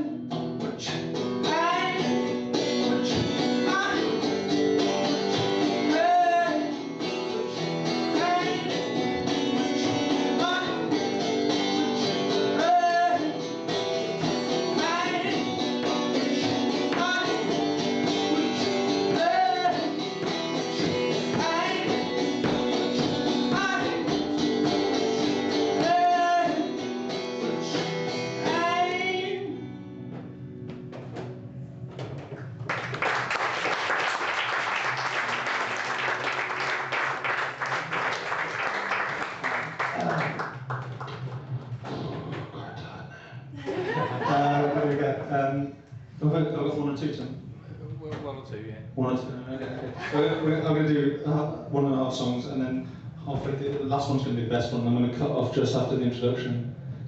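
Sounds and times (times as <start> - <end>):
person singing: 0.0 - 4.6, 5.6 - 6.8, 8.0 - 13.4, 14.7 - 22.8, 23.4 - 26.8, 28.4 - 29.6
acoustic guitar playing: 0.0 - 33.0.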